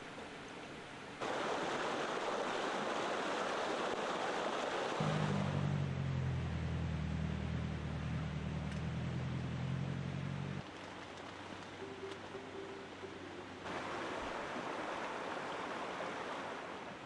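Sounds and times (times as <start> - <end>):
rushing river water: 0.0 - 17.0
low steady hum: 5.0 - 16.9.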